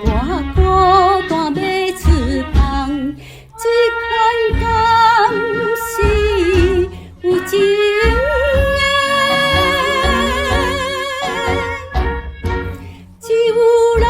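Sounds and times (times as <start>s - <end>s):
woman singing with vibrato: 0.0s - 12.2s, 13.2s - 14.0s.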